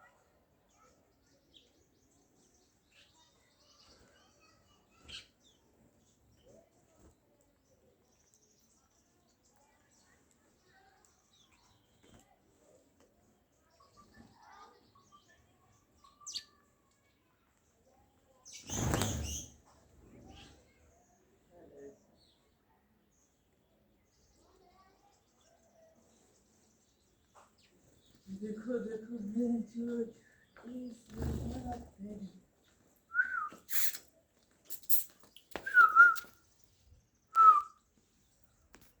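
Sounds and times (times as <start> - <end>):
small bird chirping: 0.0 - 12.8, 13.5 - 38.7.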